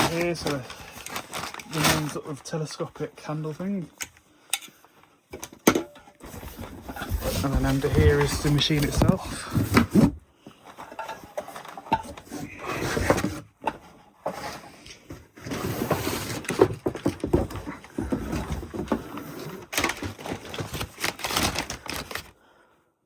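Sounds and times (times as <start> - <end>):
cardboard and plastic rustling: 0.0 - 5.6, 6.2 - 22.4.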